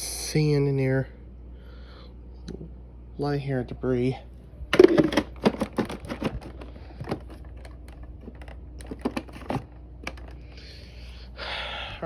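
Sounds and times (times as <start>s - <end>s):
plastic clicks and knocks: 4.8s - 10.4s.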